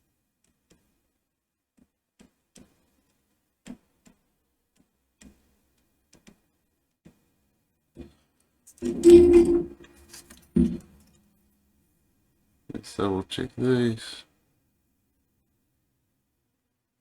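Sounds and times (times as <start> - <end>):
light tool ticks and taps: 0.4 - 0.9, 1.8 - 6.4.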